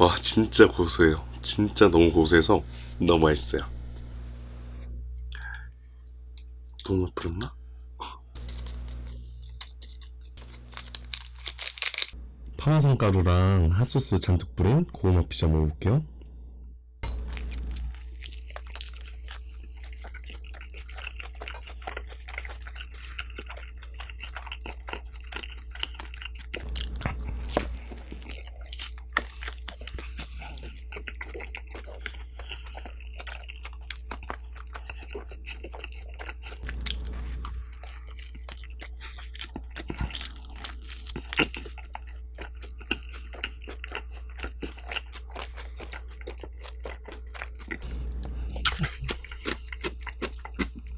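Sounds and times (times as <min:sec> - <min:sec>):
low steady hum: 0:00.0 - 0:50.9
crunchy chewing and biting: 0:08.4 - 0:12.2, 0:17.0 - 0:50.9.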